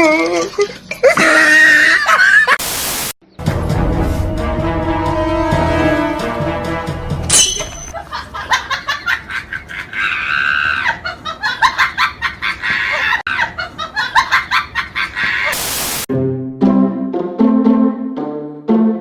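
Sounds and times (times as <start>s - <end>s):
music: 3.4s - 7.4s, 16.1s - 19.0s.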